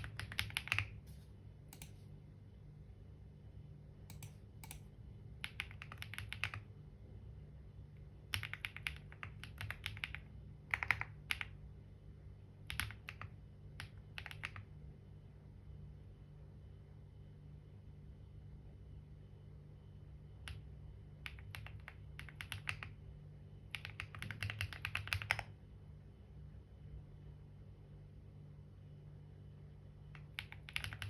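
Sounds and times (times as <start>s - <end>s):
typing on keyboard: 0.0s - 1.0s, 5.4s - 6.7s, 8.3s - 11.6s, 12.6s - 14.7s, 20.4s - 23.0s, 23.7s - 25.5s, 30.2s - 31.0s
steady low hum: 0.0s - 31.0s.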